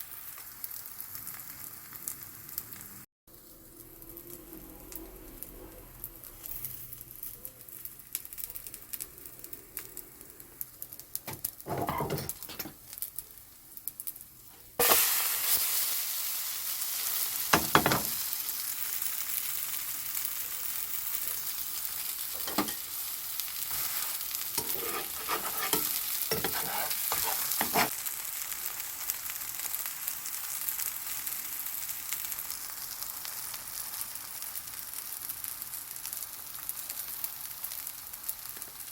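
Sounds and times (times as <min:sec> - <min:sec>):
pancake sizzling in oil: 0:00.0 - 0:38.9
utensil scraping pan: 0:11.3 - 0:12.8, 0:22.4 - 0:22.8, 0:23.7 - 0:27.9.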